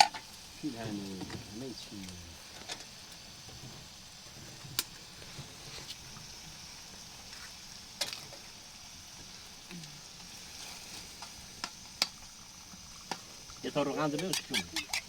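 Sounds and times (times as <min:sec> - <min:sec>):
food sizzling in hot oil: 0:00.0 - 0:15.0
sharp oil pops: 0:11.2 - 0:12.2.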